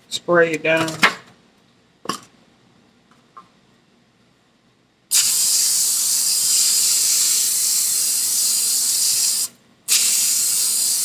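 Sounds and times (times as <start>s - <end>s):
aerosol can spraying hiss: 5.1s - 11.0s.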